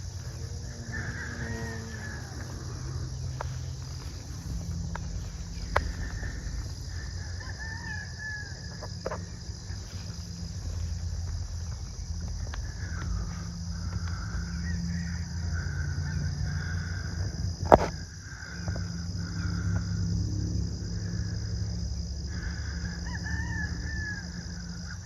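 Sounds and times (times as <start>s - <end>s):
faint fowl-like bird calls: 0.0s - 10.2s, 22.3s - 25.0s
low rumble: 0.0s - 22.7s.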